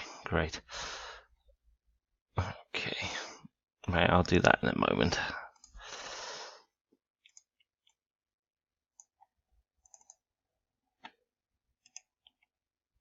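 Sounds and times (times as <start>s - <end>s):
computer clicks: 9.8s - 10.2s.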